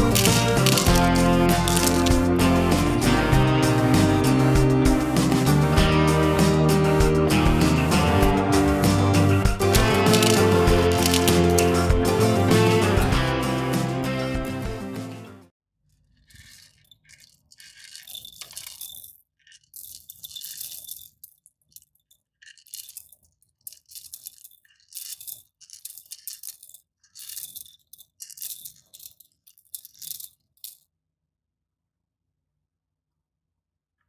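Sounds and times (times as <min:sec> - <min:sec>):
corn crushed in stone bowl: 0:00.0 - 0:03.1, 0:09.5 - 0:12.3, 0:16.0 - 0:30.8.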